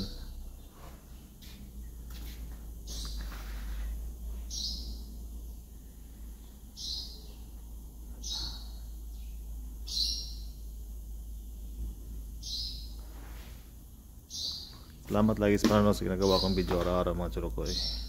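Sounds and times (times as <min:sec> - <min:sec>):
steady low hum: 0:00.0 - 0:18.0
bird chirping: 0:02.8 - 0:11.8, 0:12.4 - 0:13.1, 0:13.9 - 0:18.0.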